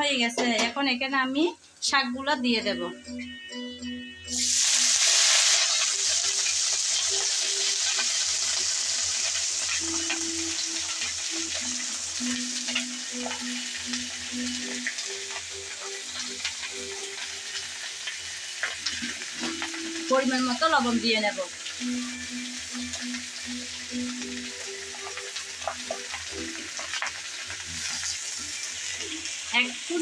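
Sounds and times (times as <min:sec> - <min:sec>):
greens sizzling in hot oil: 0:04.3 - 0:30.0
oil crackles: 0:04.4 - 0:21.0, 0:21.6 - 0:30.0.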